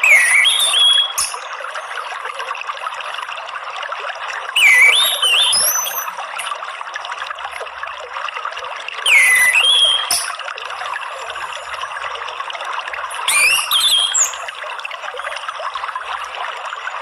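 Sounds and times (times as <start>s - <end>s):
bird whistling: 0.0s - 1.5s, 4.6s - 6.2s, 9.1s - 10.4s, 13.1s - 14.5s
water trickling: 0.0s - 17.0s.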